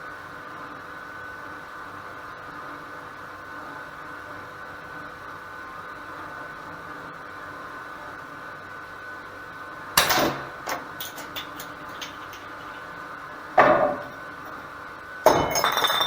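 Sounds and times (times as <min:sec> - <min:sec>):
steady background hum: 0:05.0 - 0:16.0
sharp ringing knocks: 0:10.0 - 0:12.9, 0:13.6 - 0:14.6.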